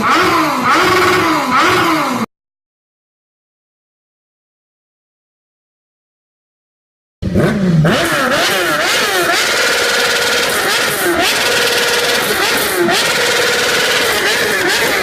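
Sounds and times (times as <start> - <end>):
motorcycle engine revving: 0.0 - 2.3, 7.2 - 15.0
exhaust crackles: 7.3 - 15.0.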